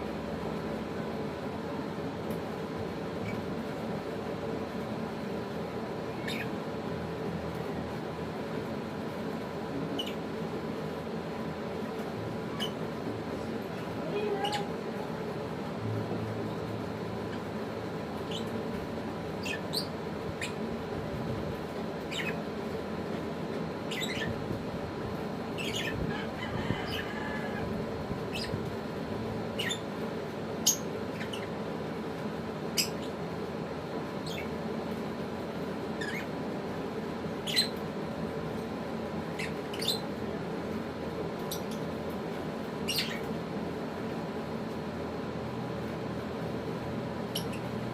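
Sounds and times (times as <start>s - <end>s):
steady low hum: 0.0s - 47.9s
lovebirds chirping and squeaking: 6.1s - 6.6s, 10.0s - 10.2s, 12.5s - 12.8s, 14.2s - 14.8s, 18.2s - 18.6s, 19.3s - 20.6s, 22.1s - 22.4s, 23.9s - 24.4s, 25.6s - 27.1s, 28.3s - 28.7s, 29.6s - 29.9s, 30.6s - 31.6s, 32.8s - 33.2s, 34.2s - 34.6s, 36.0s - 36.4s, 37.4s - 37.8s, 39.4s - 40.1s, 42.8s - 43.3s, 47.3s - 47.8s.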